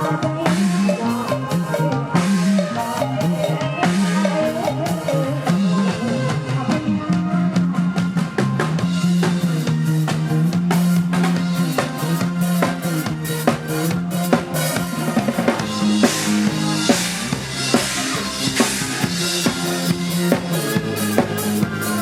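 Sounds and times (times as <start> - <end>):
drum kit steady beat: 0.0 - 22.0
live band music: 0.0 - 22.0
sustained bass line: 0.0 - 22.0.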